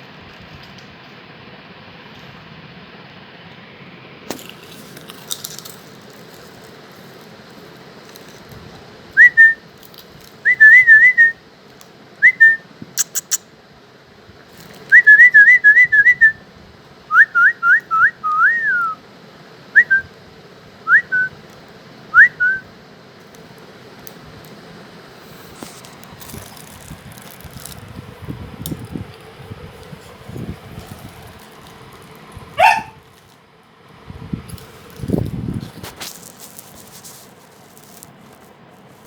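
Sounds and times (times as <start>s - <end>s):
sharp clicks: 12.9s - 13.4s
dog whining: 32.6s - 33.0s.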